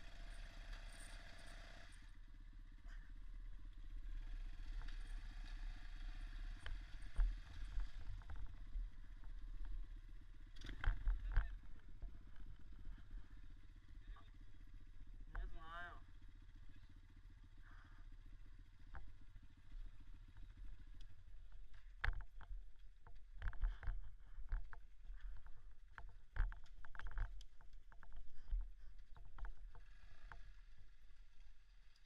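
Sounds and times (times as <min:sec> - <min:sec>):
dirt bike engine at low revs: 0:00.0 - 0:32.0
sharp knocks and rattles: 0:04.6 - 0:13.8, 0:18.4 - 0:32.0.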